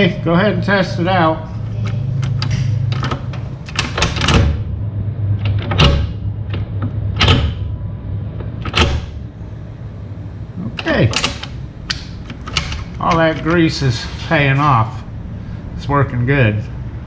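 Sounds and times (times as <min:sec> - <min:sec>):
steady low hum: 0:00.0 - 0:17.0
shifter linkage clunking: 0:01.6 - 0:09.3, 0:10.7 - 0:14.8.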